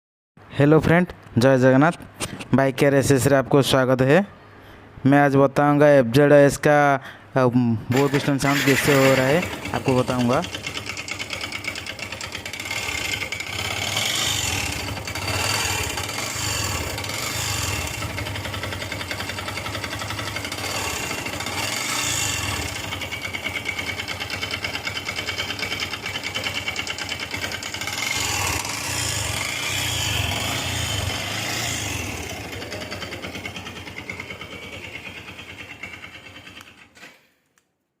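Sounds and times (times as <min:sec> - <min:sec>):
engine running with mechanical rattle: 0:07.9 - 0:37.2.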